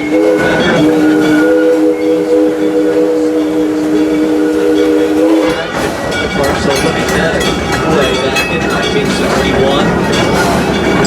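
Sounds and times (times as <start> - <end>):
steam locomotive whistle blast: 0.0 - 6.0.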